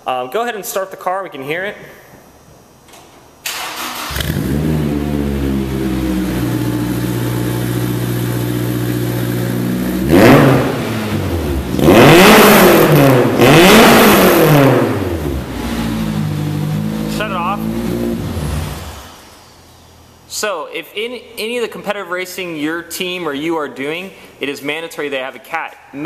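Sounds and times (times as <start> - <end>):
car engine starting and revving: 3.5 - 19.6.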